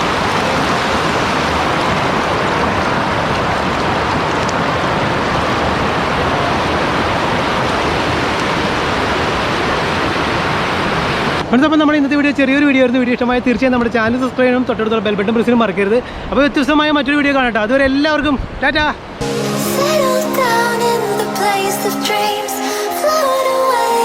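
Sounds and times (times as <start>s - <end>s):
water rushing over rocks: 0.0s - 11.5s.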